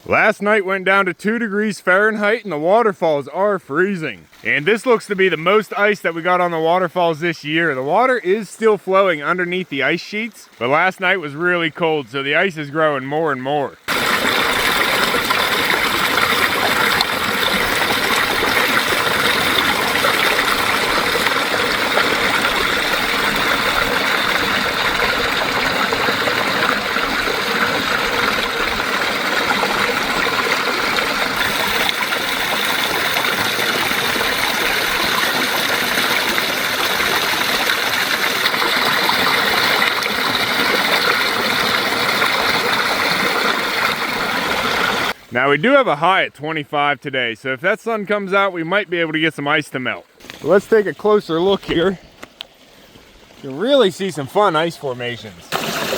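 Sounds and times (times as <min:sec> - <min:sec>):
waterfall splashing under ice: 0:13.9 - 0:45.2, 0:50.2 - 0:55.9.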